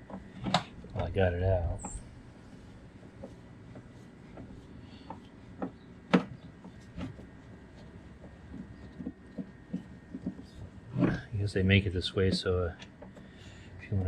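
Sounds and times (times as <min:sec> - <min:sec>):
hands and tools knocking on plastic: 0:08.2 - 0:11.2.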